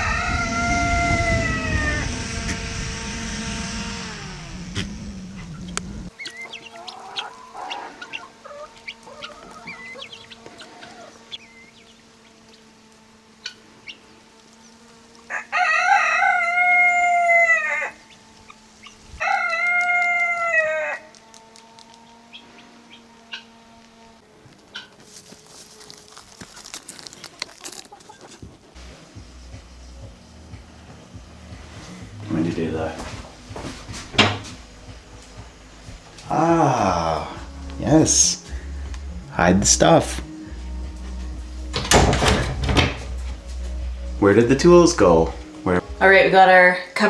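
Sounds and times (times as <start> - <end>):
rooster clucking: 0.0 - 2.6, 4.8 - 11.4
low rumble: 0.0 - 6.1
rooster crowing: 0.0 - 11.8, 15.1 - 24.2
faint steady hum: 0.0 - 27.9, 28.5 - 47.0.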